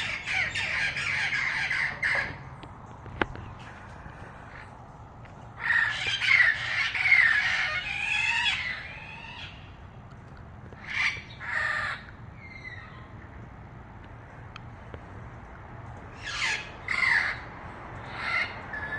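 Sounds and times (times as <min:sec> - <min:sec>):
parrot squawking: 0:00.0 - 0:02.4, 0:05.6 - 0:09.6, 0:16.2 - 0:17.4.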